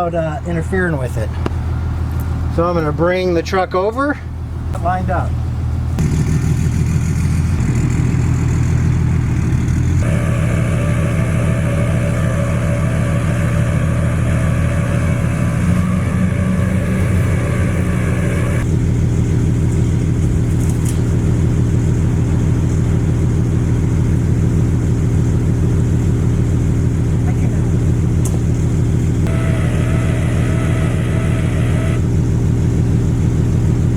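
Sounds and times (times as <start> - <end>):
diesel truck engine running: 0.0 - 33.9
high steady whine: 10.0 - 18.7, 29.3 - 32.0.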